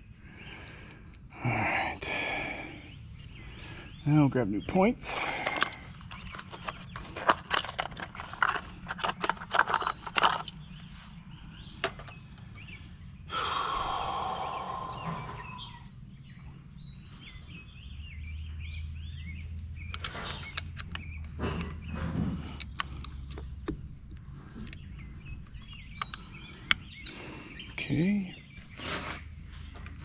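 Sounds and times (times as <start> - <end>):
small parts clicking and rattling: 5.2 - 10.7, 11.8 - 12.5, 19.9 - 21.8
packaging rustling scrape: 6.0 - 11.0.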